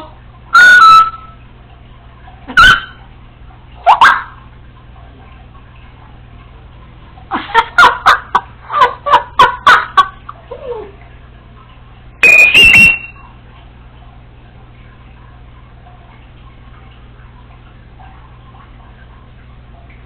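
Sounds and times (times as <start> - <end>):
parrot calling: 2.5 - 3.0, 12.2 - 13.2
parrot chattering notes: 12.2 - 13.2.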